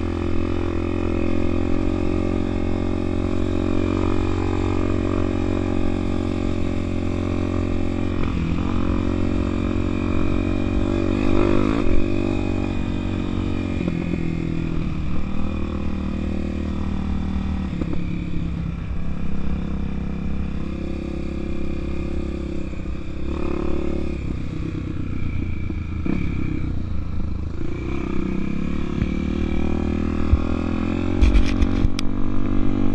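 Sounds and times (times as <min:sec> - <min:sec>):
motorcycle engine revving: 0:00.0 - 0:32.9.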